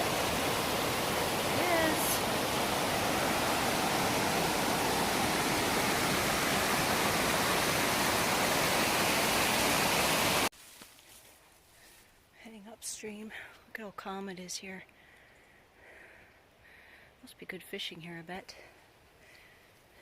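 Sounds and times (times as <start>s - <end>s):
waterfall roaring: 0.0s - 10.5s.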